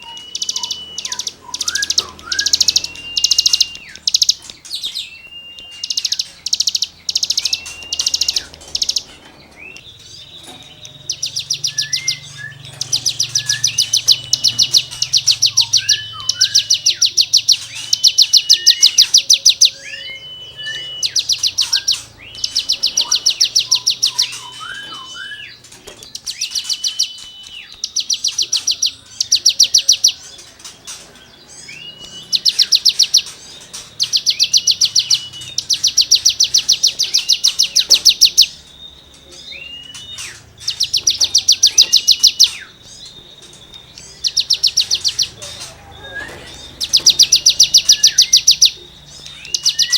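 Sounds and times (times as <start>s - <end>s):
soft low whistled bird notes: 0.0s - 49.9s
songbird rasping trills: 0.0s - 49.9s.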